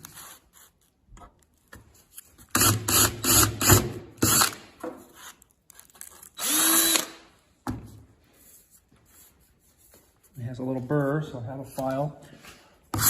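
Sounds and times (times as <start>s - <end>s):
power drill drilling steel: 2.6s - 4.6s, 6.4s - 7.2s.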